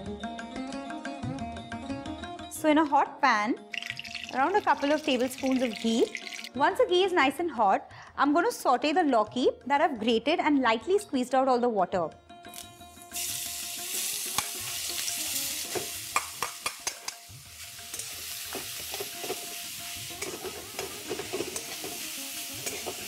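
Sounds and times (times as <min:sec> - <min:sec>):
vegetables sizzling in hot fat: 0:03.8 - 0:06.5, 0:12.5 - 0:23.0
metal spatula scraping a pan: 0:17.8 - 0:23.0.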